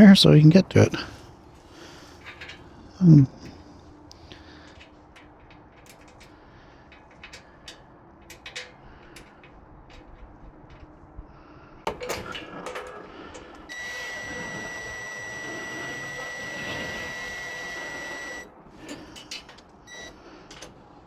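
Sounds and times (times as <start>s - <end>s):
metal clatter: 1.4s - 13.7s
small metal clicks and taps: 3.4s - 11.0s
high-pitched whine: 13.7s - 18.5s.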